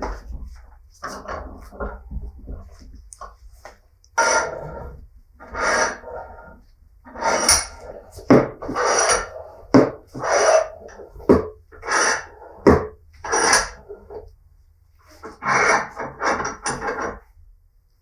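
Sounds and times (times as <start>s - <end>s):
rasping scraping strokes: 4.2s - 14.2s, 15.1s - 17.2s.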